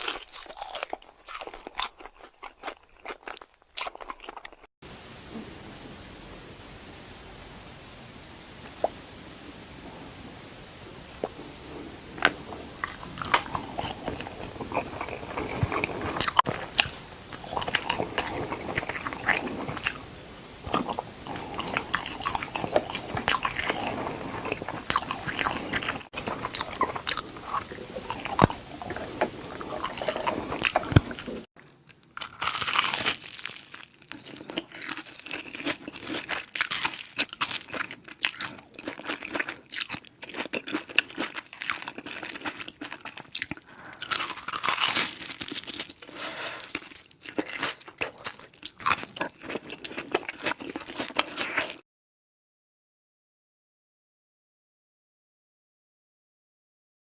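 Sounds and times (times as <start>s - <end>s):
crunchy chewing: 0.0s - 4.7s, 12.2s - 51.8s.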